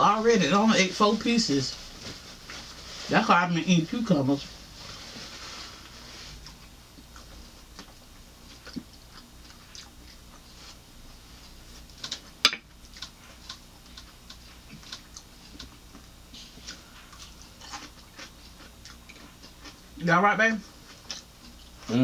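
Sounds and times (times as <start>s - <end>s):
crunchy chewing: 5.6s - 22.0s.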